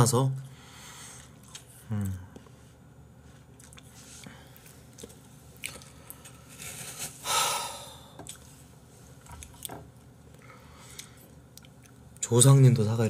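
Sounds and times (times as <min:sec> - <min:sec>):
loud breath: 0:07.2 - 0:08.2.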